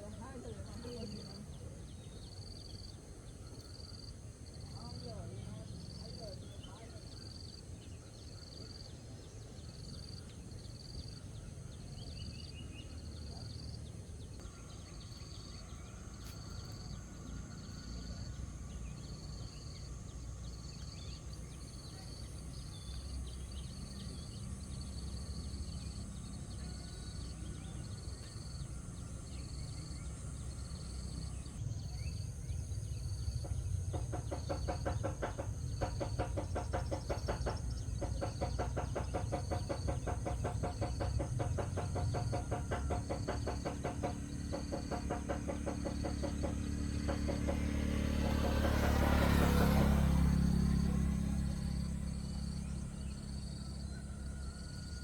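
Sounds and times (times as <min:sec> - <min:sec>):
insect chirping: 0:00.0 - 0:55.0.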